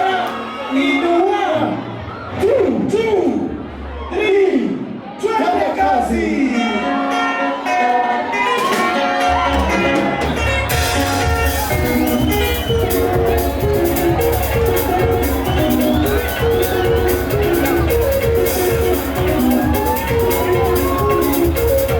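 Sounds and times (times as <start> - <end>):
picked lead guitar melody: 7.0 - 21.9
bass guitar: 8.4 - 21.9
drums playing dance beat: 8.5 - 21.9.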